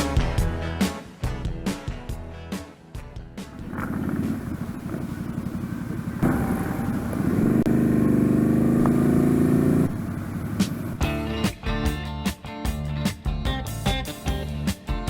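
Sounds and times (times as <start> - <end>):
motorcycle engine running: 3.4 - 11.4.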